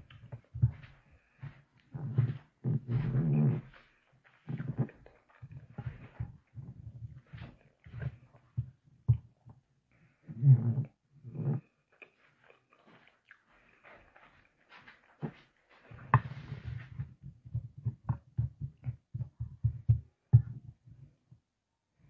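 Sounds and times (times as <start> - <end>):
chewing and lip-smacking: 11.9 - 15.5.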